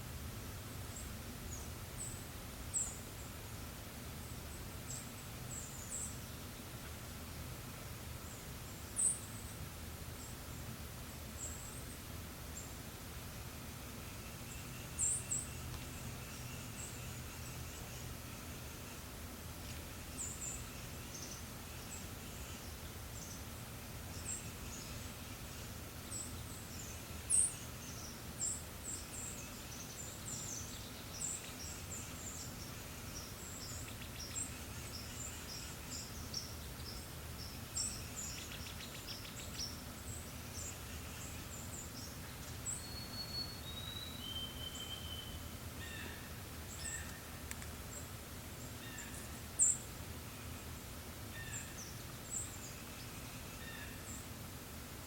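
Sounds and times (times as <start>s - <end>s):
bird whistled notes: 42.8s - 45.4s.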